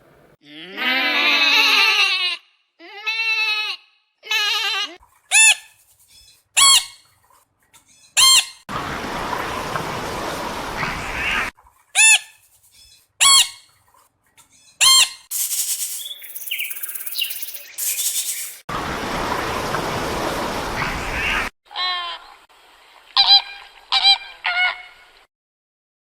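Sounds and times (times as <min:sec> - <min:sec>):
short bird calls: 0:14.6 - 0:18.6
high bird chirping: 0:14.6 - 0:18.7.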